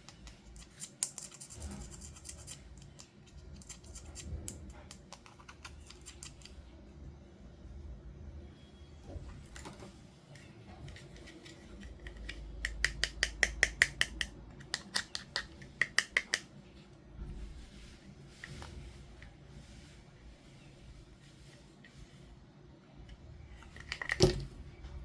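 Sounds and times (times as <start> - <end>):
plastic toy packaging clicks and snips: 10.9 - 16.5.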